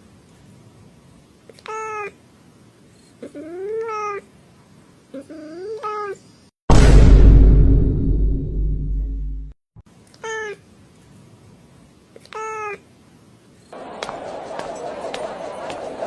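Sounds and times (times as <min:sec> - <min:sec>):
loud burst of noise: 0:06.7 - 0:09.5.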